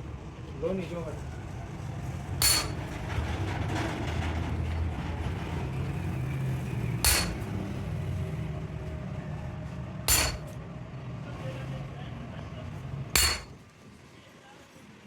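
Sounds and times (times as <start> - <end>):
hammer blow on steel: 2.4 - 2.9, 7.0 - 7.6, 10.1 - 10.5, 13.2 - 13.6
steady low hum: 2.4 - 3.0, 7.0 - 7.6, 10.1 - 10.6, 13.2 - 13.6.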